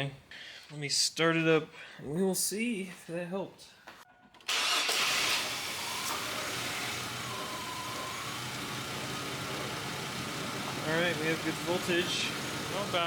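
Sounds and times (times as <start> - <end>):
car engine idling: 5.0 - 13.0.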